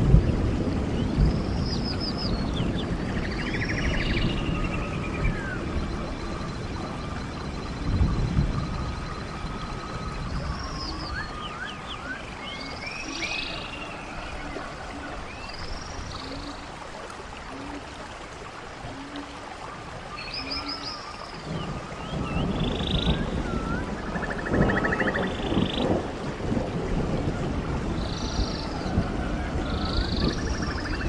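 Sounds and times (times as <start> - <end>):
running stream: 0.0 - 31.0
birds chirping and trilling: 1.0 - 16.8, 20.1 - 26.0, 27.9 - 31.0.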